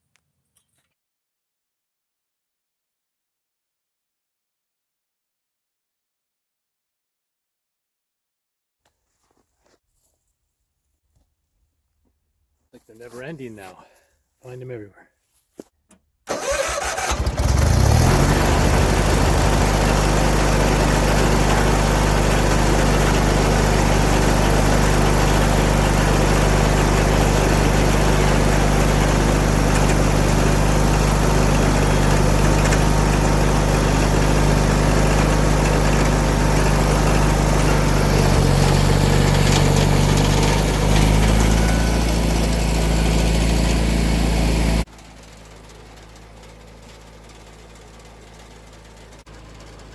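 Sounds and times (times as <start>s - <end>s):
garden tractor engine: 15.6s - 49.9s.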